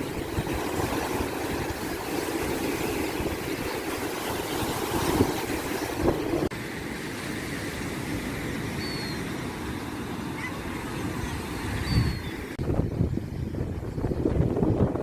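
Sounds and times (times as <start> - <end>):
wind buffeting the microphone: 0.0 - 6.5, 11.4 - 15.0
rough sea surf: 0.0 - 15.0.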